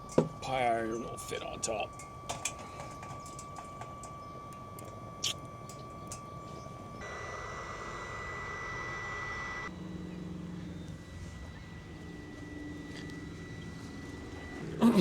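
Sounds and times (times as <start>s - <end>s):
wood fire: 0.0s - 8.5s
stove fan whining: 0.0s - 15.0s.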